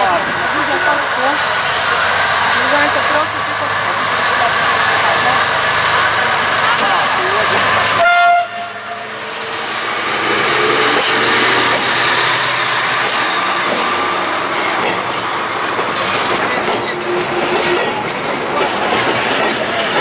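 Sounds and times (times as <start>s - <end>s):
passing train rolling noise: 0.0s - 20.0s
train horn blast: 8.0s - 9.3s.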